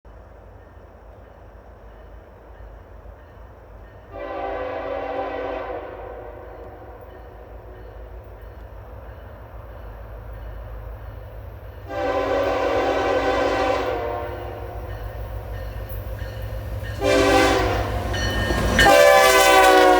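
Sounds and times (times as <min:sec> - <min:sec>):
locomotive air horn blasts: 0:04.1 - 0:07.7, 0:11.9 - 0:14.8, 0:17.0 - 0:19.9.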